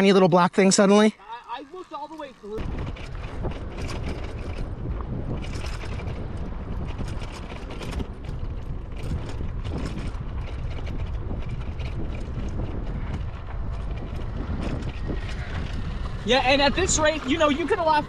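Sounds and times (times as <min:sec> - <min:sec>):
bike clicking and rattling: 0:01.2 - 0:18.0
wind on microphone: 0:02.4 - 0:18.0.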